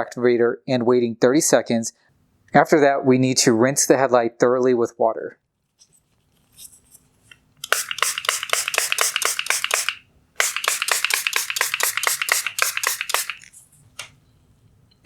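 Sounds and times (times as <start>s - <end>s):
towel scrubbing plastic lens: 7.1s - 13.8s.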